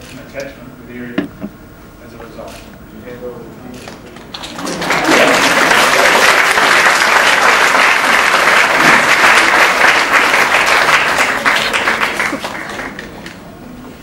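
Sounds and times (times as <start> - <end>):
audience applauding: 4.3 - 13.4.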